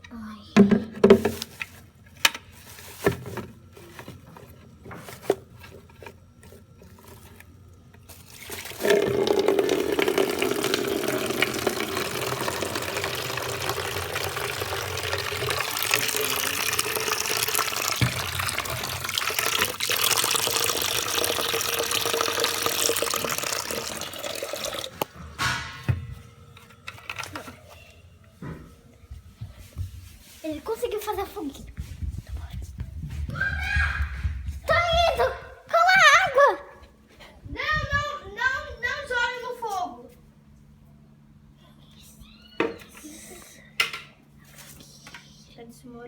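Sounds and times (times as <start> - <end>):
water running from a tap: 8.1 - 25.1.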